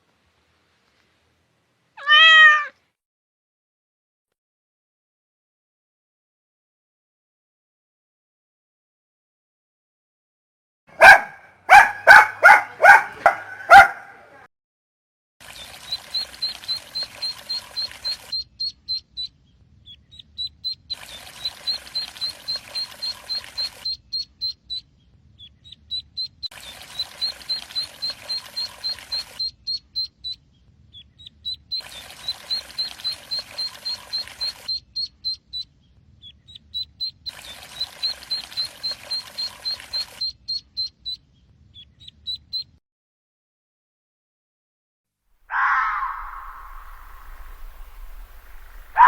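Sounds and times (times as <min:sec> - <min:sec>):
puppy barking: 0:10.9 - 0:14.5, 0:45.5 - 0:47.0, 0:48.7 - 0:49.0.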